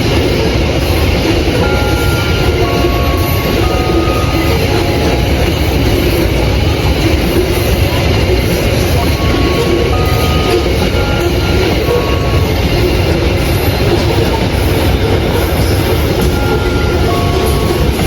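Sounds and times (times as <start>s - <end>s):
train wheels rumbling on rails: 0.0s - 18.0s
brief high-pitched tones: 9.1s - 13.2s.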